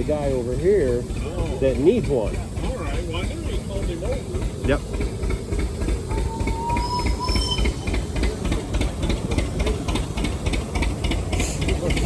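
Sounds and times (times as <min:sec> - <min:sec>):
steam engine beating with hiss: 0:00.0 - 0:12.0
faint thin tone: 0:06.1 - 0:08.0.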